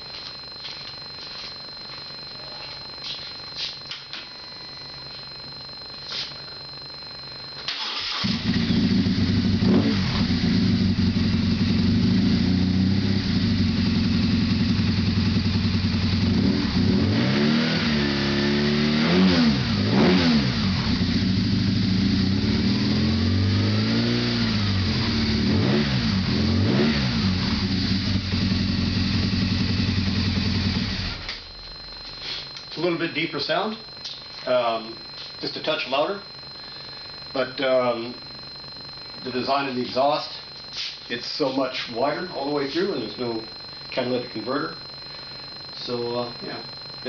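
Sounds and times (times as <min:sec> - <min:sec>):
motorcycle engine starting and revving: 0:07.7 - 0:31.7.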